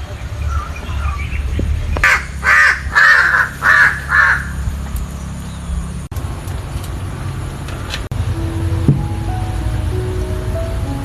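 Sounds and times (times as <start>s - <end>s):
bird giving harsh calls: 0.4s - 5.2s.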